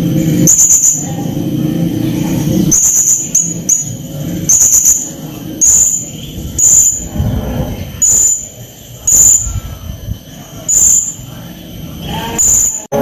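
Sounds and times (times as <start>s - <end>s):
low buzzing: 0.0s - 13.0s
parrot shrill high chirps: 2.7s - 7.1s, 8.0s - 9.5s.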